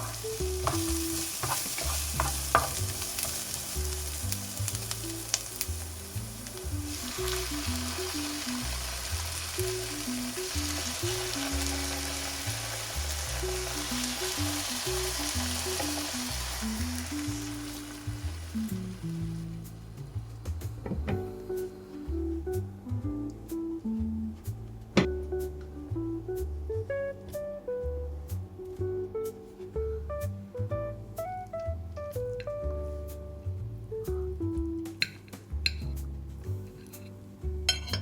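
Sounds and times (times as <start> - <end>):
food sizzling in a pan: 0.0 - 19.8
background music: 0.0 - 38.0.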